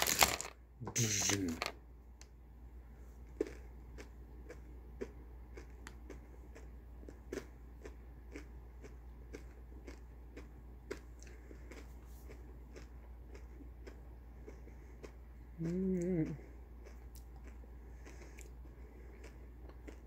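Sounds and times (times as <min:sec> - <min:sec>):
candy shells crunching: 0:00.0 - 0:01.7.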